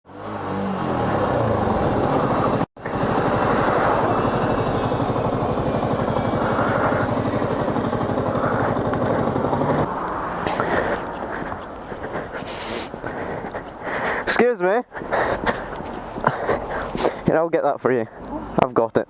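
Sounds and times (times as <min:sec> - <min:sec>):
motorcycle engine accelerating: 0:00.1 - 0:12.4.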